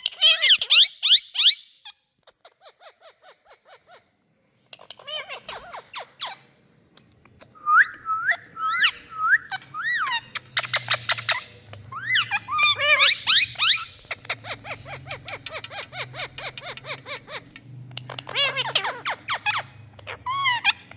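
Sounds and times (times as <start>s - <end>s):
parrots chirping and whistling: 0.0s - 1.7s, 4.9s - 6.5s, 7.4s - 20.9s.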